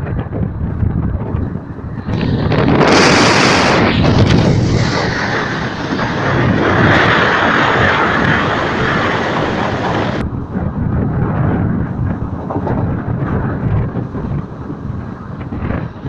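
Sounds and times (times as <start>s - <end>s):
wind rushing: 0.0s - 16.0s
hiss: 2.0s - 10.2s.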